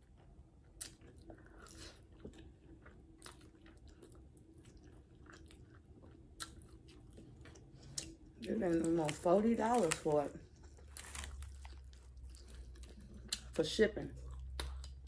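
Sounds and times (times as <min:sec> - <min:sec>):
wet chewing clicks and smacks: 0:00.0 - 0:08.3, 0:14.2 - 0:15.0
faint low hum: 0:00.0 - 0:15.0.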